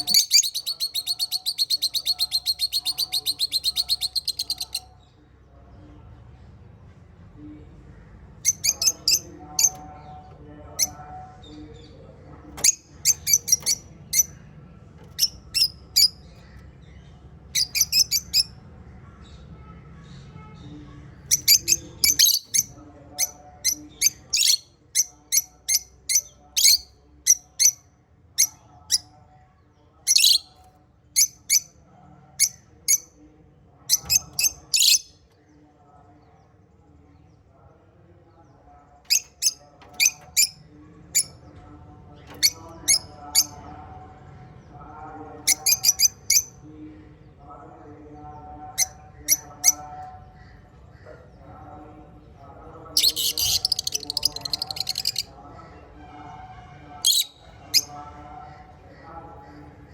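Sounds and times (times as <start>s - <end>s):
small parrots chirping: 0.0s - 4.8s, 8.4s - 9.8s, 12.6s - 14.4s, 15.0s - 16.4s, 17.5s - 18.5s, 21.3s - 27.8s, 30.1s - 30.5s, 33.9s - 35.2s, 45.5s - 46.5s, 53.0s - 55.3s
soft bird chattering: 0.0s - 4.9s, 8.3s - 18.6s, 21.2s - 29.1s, 30.0s - 31.8s, 33.9s - 35.3s, 39.1s - 41.4s, 42.2s - 43.6s, 45.5s - 46.6s, 48.7s - 51.5s, 52.9s - 55.4s, 57.0s - 59.9s.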